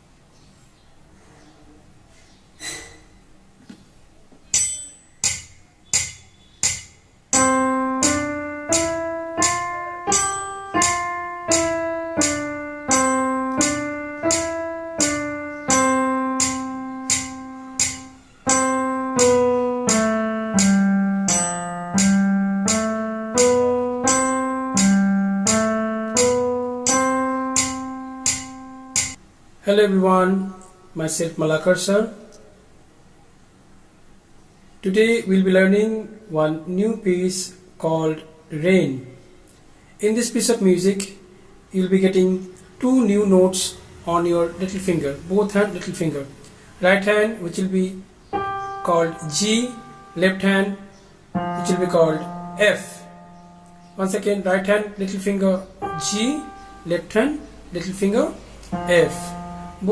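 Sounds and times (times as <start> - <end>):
simple keyboard melody: 4.5 - 29.2, 47.5 - 59.9
electronic keyboard rhythm beat: 6.0 - 29.2, 48.4 - 54.9, 55.7 - 57.4, 58.6 - 59.9.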